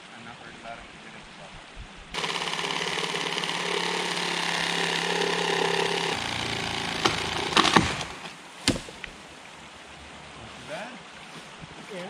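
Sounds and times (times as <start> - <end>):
reciprocating saw cutting wood: 2.2 - 8.4
wood cracking: 2.2 - 9.2.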